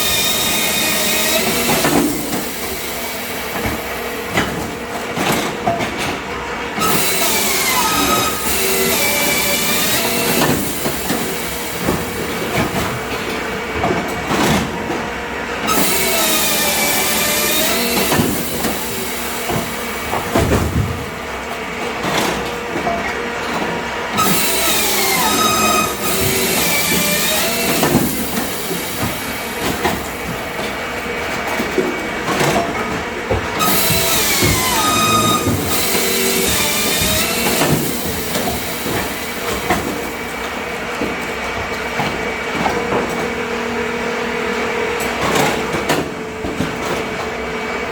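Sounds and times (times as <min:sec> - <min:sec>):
machinery clattering: 0:00.0 - 0:43.4
metallic squeals: 0:24.2 - 0:27.9, 0:33.6 - 0:37.6
machinery high whine: 0:24.2 - 0:31.7, 0:33.6 - 0:40.4
whining tones sliding: 0:33.6 - 0:37.9.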